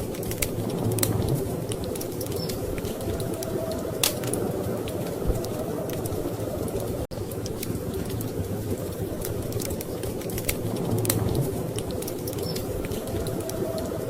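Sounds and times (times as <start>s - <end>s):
storm wind rumbling: 0.0s - 14.0s
wood fire crackling: 0.0s - 14.0s.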